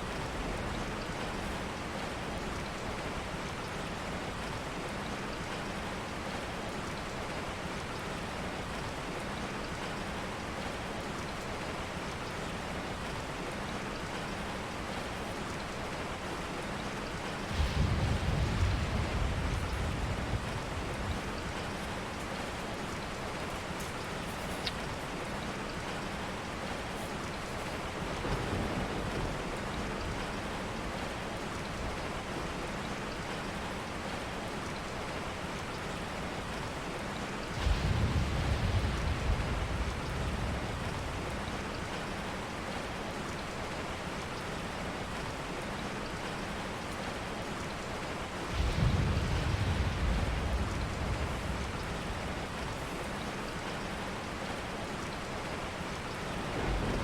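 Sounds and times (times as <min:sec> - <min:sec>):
steady rain: 0:00.0 - 0:57.0
low rolls of thunder: 0:17.4 - 0:22.6, 0:28.0 - 0:31.1, 0:37.5 - 0:42.0, 0:48.4 - 0:53.3, 0:56.3 - 0:57.0.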